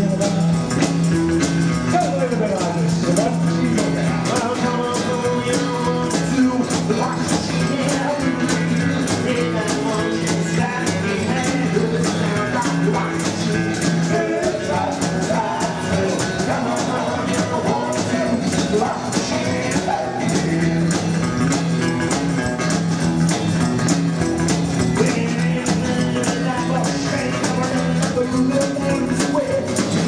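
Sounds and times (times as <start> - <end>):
double bass: 0.0 - 30.0
drums steady beat: 0.0 - 30.0
guitar: 0.0 - 30.0
person singing: 1.9 - 21.1, 25.0 - 30.0.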